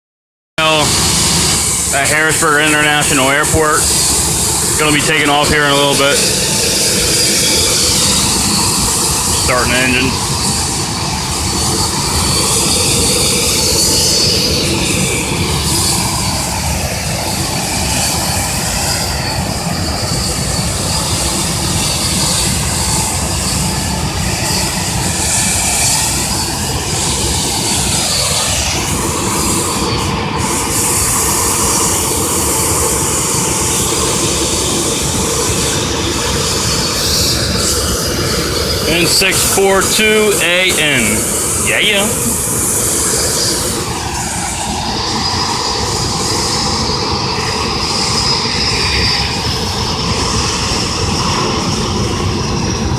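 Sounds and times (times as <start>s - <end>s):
jet engines rushing with high whine: 0.6s - 52.9s.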